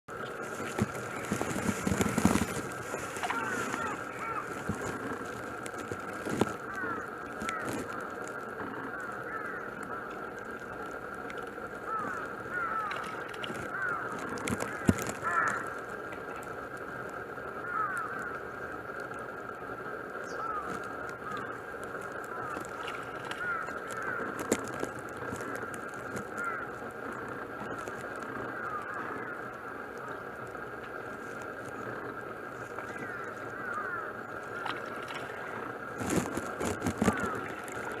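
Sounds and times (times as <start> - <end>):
harsh bird calls: 0.1 - 10.4, 11.8 - 15.9, 20.2 - 38.0
steady high drone: 0.1 - 24.3, 24.9 - 38.0
steady high-pitched hum: 0.1 - 38.0
splashing in water: 0.3 - 8.4, 11.9 - 16.5, 20.4 - 26.6, 32.6 - 38.0.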